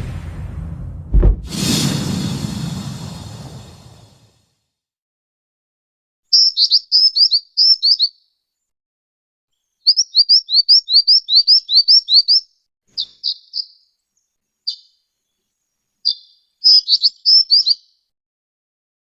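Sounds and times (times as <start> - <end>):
bird chirping calls: 6.3 - 8.3, 9.8 - 14.0, 14.6 - 15.0, 16.0 - 18.0.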